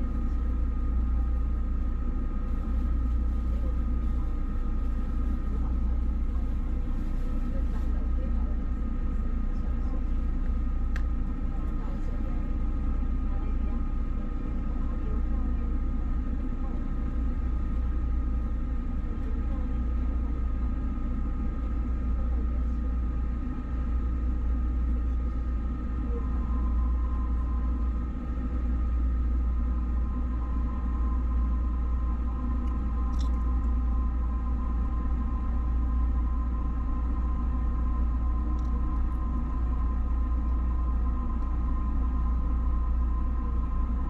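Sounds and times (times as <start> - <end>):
constant whine: 0.0 - 44.0
train rumbling: 0.0 - 44.0
higher whine tone: 24.9 - 44.0.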